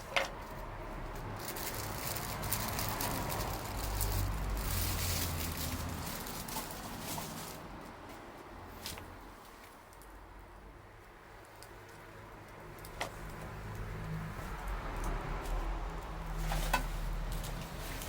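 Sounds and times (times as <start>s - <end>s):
wood fire crackling: 0.0s - 10.1s.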